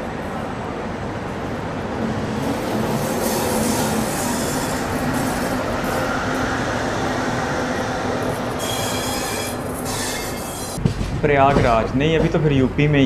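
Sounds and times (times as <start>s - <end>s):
train wheels rumbling on rails: 0.0s - 13.0s
metallic wheel squeal: 3.3s - 5.6s, 8.5s - 10.8s.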